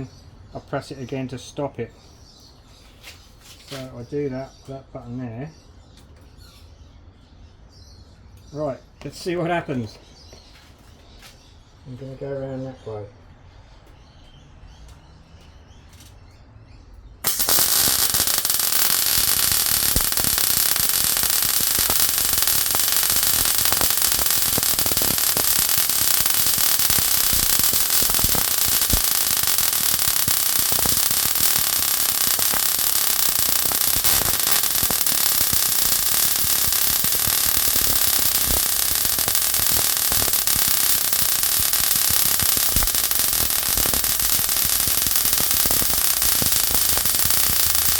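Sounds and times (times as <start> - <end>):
welding arc crackling: 17.2 - 47.9.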